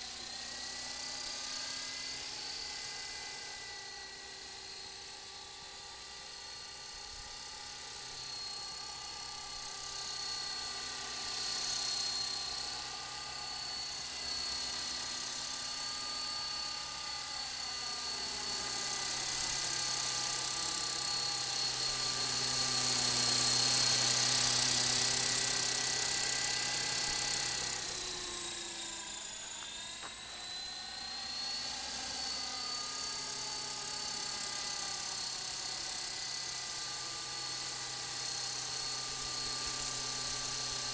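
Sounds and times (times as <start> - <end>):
toy helicopter rotors whining: 0.0 - 40.9.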